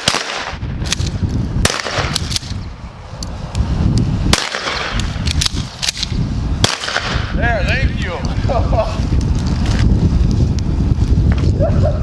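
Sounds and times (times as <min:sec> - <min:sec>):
shotgun shots: 0:00.0 - 0:01.0, 0:01.6 - 0:02.5, 0:04.3 - 0:05.0, 0:06.6 - 0:07.3
wind rumble on microphone: 0:00.0 - 0:12.0.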